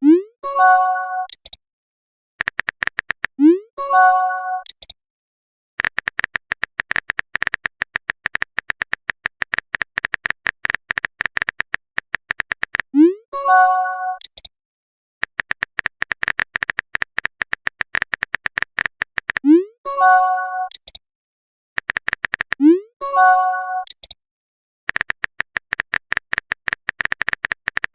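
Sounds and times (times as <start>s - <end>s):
beeping typing clicks: 1.2s - 1.6s, 2.4s - 5.0s, 5.8s - 13.0s, 14.0s - 14.5s, 15.2s - 21.0s, 21.8s - 24.2s, 24.9s - 27.9s
message chime: 13.4s - 14.2s, 19.9s - 20.7s, 23.1s - 23.9s.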